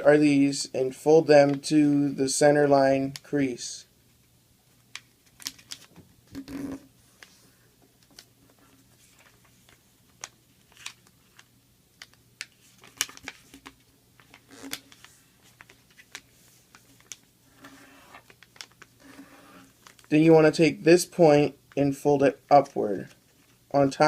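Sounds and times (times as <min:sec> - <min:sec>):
faint steady hum: 0:00.0 - 0:24.0
paper rustling and crinkling: 0:07.1 - 0:20.1.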